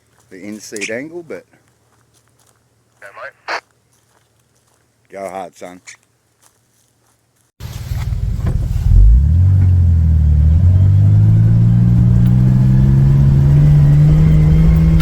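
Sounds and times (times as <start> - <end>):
vehicle engine revving under load: 7.6 - 15.0.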